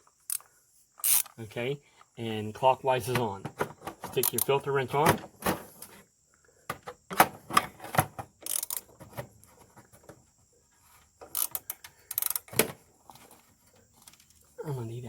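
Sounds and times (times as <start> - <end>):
wrench clattering against metal: 8.4 - 8.8.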